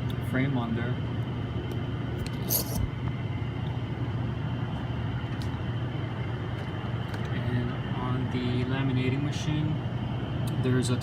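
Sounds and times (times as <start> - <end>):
low machine hum: 0.0 - 11.0
faint high whine: 4.5 - 11.0.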